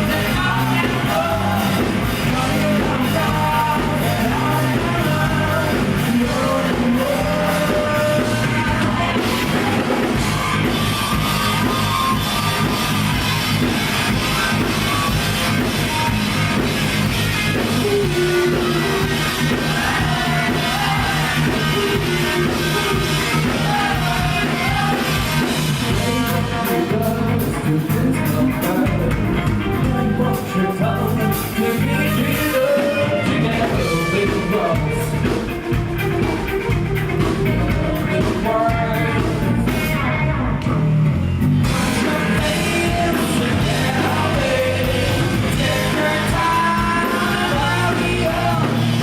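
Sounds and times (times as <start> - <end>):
person singing: 0.0 - 12.8, 17.5 - 35.6, 37.6 - 40.7, 41.6 - 49.0
rock band playing live: 0.0 - 49.0.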